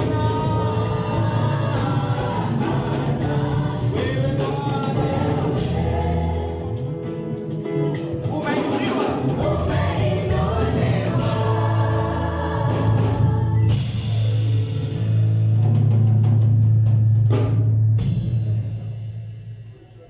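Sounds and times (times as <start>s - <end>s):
gospel choir singing: 0.0s - 14.7s
band playing: 0.0s - 16.5s.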